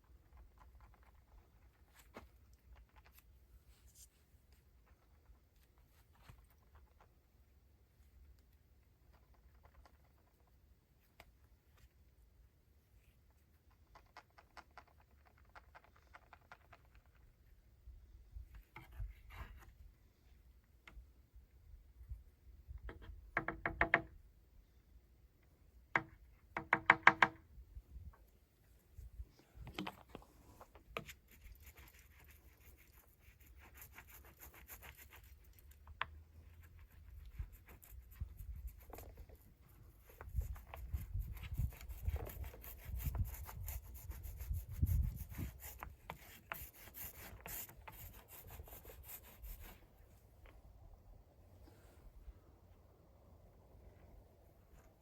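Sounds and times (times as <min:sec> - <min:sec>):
soft rubbing and scraping: 0:00.8 - 0:07.1, 0:51.5 - 0:52.5.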